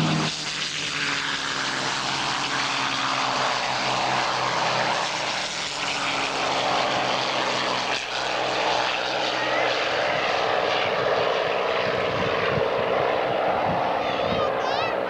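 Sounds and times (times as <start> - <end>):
propeller plane engines droning: 0.0 - 15.0.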